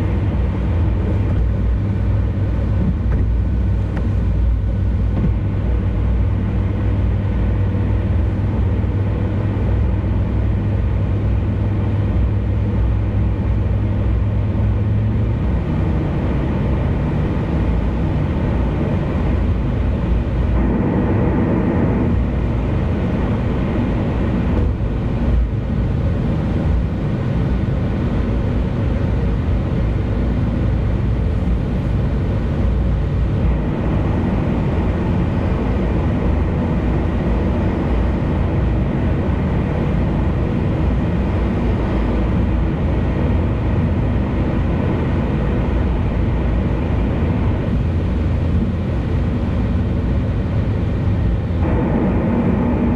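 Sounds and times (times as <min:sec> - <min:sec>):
car road and engine noise: 0:00.0 - 0:52.9
low hum: 0:16.2 - 0:26.8, 0:30.4 - 0:52.9.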